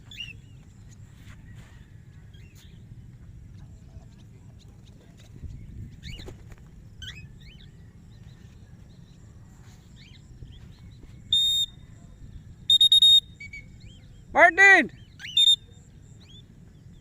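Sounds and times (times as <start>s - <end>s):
faint bird chirps: 0.0s - 17.0s
high-pitched whistle: 11.3s - 11.8s, 12.7s - 13.7s, 15.2s - 15.7s.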